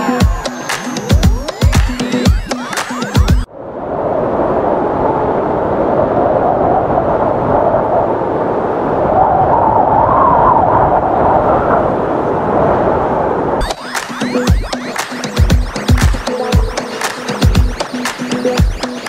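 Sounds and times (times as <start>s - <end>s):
faint wind whistling: 3.5s - 13.6s
strong wind blowing: 3.5s - 13.6s.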